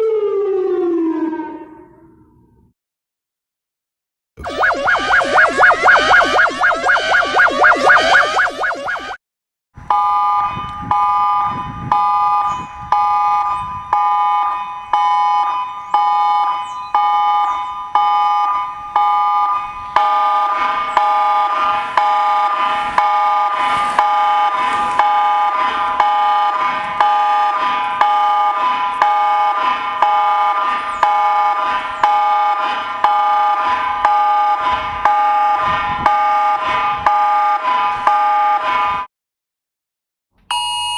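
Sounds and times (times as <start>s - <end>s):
lower electronic tone: 4.4s - 9.2s
pulsing electronic alert tones: 4.4s - 9.2s.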